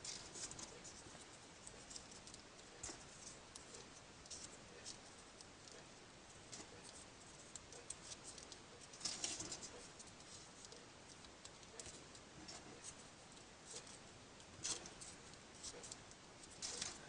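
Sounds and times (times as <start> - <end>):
paper rustling and clicking: 6.4 - 17.0.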